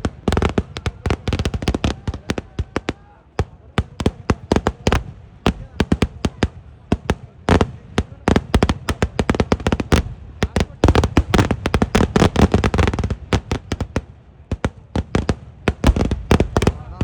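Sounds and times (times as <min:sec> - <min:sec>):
firecracker bangs: 0:00.0 - 0:17.0.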